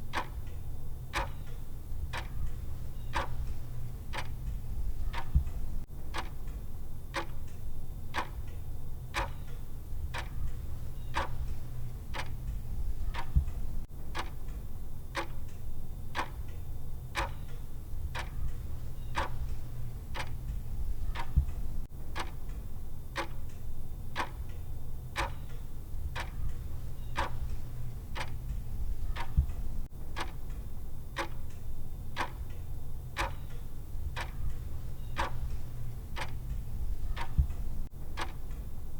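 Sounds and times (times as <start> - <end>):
clock ticking: 0.0 - 16.6, 17.2 - 38.9.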